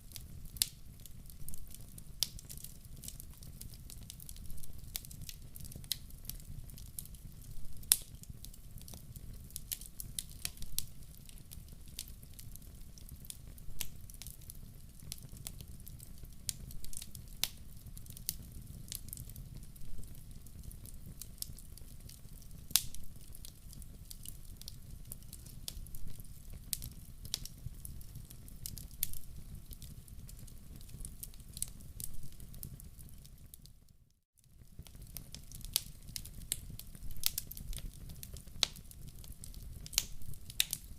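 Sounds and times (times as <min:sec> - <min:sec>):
low rumble of flames: 0:00.0 - 0:33.5, 0:34.6 - 0:40.9
log fire crackling: 0:00.0 - 0:33.9, 0:34.5 - 0:40.9
sharp pops of fire: 0:34.6 - 0:40.9.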